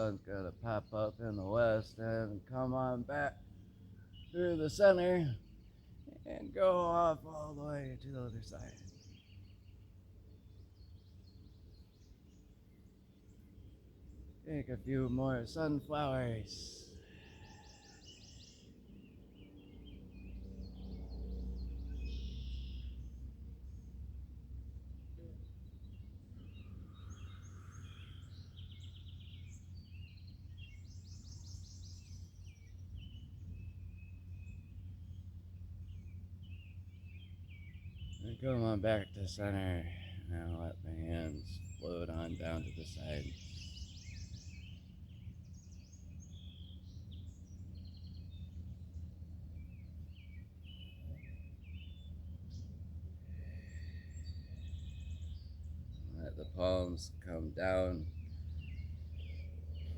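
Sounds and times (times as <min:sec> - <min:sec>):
birds singing and calling: 0:00.0 - 0:59.9
songbirds chirping: 0:00.0 - 0:59.9
steady low rumble: 0:19.6 - 0:59.9.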